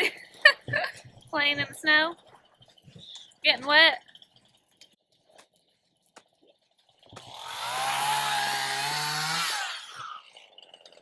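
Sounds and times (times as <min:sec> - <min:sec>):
chainsaw cutting at high speed: 0:07.2 - 0:10.7.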